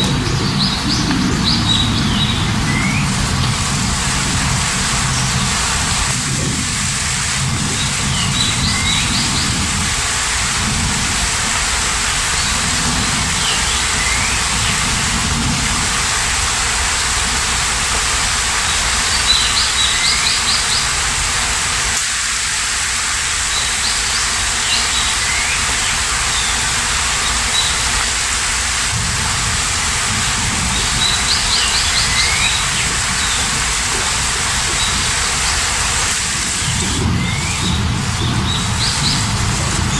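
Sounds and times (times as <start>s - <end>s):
bird chirping and whistling: 0.0s - 3.2s, 8.1s - 9.5s, 13.4s - 14.8s, 23.5s - 27.8s, 30.8s - 33.4s, 36.6s - 39.2s
steady rain: 0.0s - 39.9s
low rumble: 28.9s - 35.1s, 36.1s - 39.9s.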